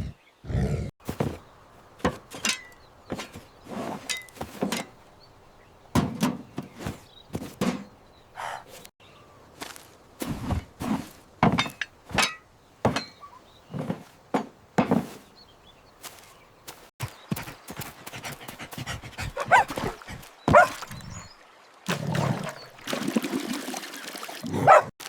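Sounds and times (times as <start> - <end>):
short thuds and knocks: 1.0 - 5.1, 5.9 - 8.0, 9.6 - 15.4, 17.0 - 21.2
cartoon dog panting and barking: 18.1 - 20.7.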